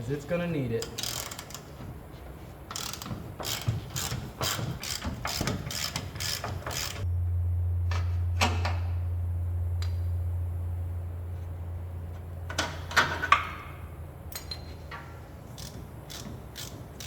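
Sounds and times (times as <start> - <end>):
steady low hum: 0.0 - 17.0
ratchet wrench clicking: 0.8 - 1.7, 2.7 - 7.0, 15.6 - 17.0.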